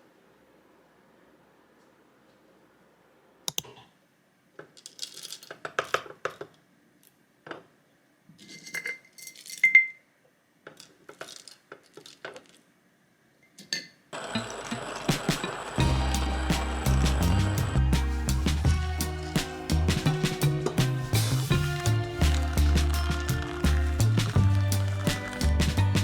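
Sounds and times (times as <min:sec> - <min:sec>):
tableware clinking and clattering: 0:08.4 - 0:10.0, 0:13.5 - 0:15.6
music: 0:15.1 - 0:26.0.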